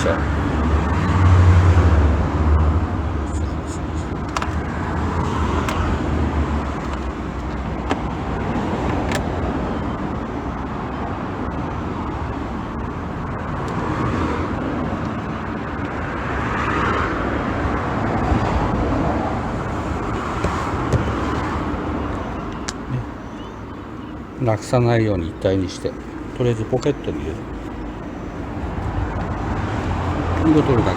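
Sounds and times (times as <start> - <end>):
road traffic rumble: 0.0 - 30.9.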